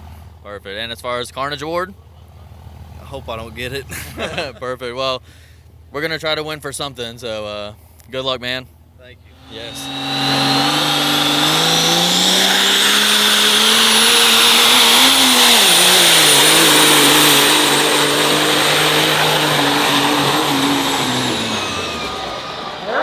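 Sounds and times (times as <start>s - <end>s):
diesel truck engine at full throttle: 9.4s - 23.0s
turbocharger whistle: 9.4s - 23.0s.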